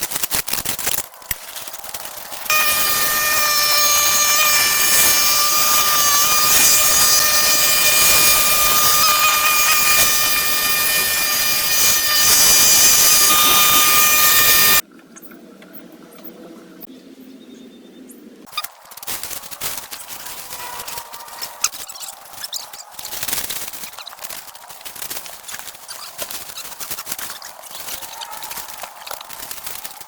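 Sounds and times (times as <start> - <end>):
power tool engine whining: 1.3 - 14.8.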